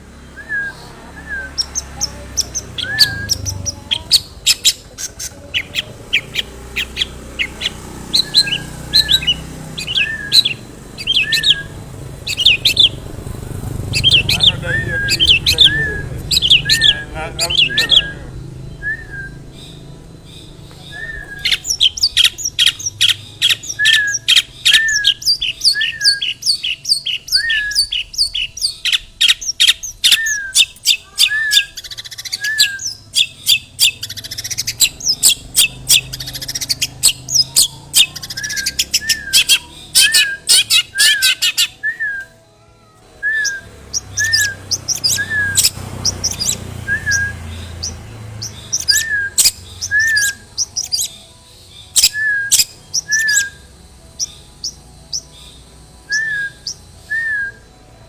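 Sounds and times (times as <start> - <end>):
shrike singing harsh chattering: 1.2 - 41.8, 43.2 - 57.4
short rising and falling call: 13.9 - 22.0.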